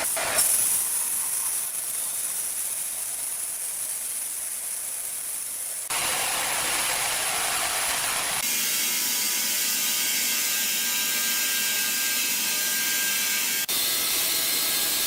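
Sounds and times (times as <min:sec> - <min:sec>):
woodworking machinery running: 0:05.9 - 0:15.0.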